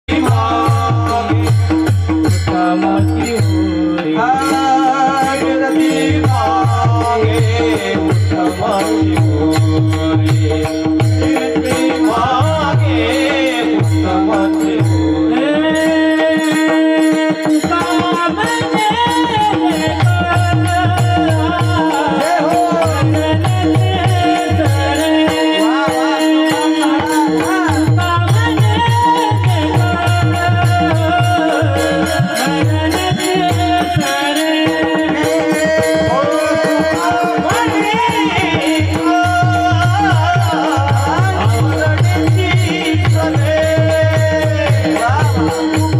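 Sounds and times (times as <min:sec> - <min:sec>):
person singing devotional melody: 0:00.0 - 0:45.9
jingling percussion: 0:00.1 - 0:45.9.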